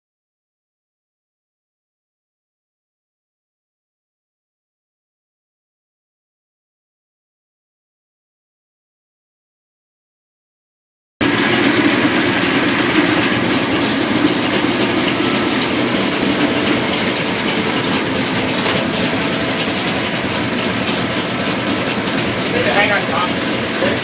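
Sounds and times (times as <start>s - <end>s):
race engine running loud: 11.2s - 24.0s.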